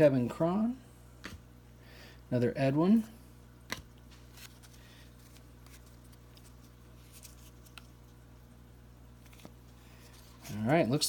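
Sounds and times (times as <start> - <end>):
cards being flipped and slid: 1.2 - 1.4, 3.7 - 8.0, 9.2 - 10.6.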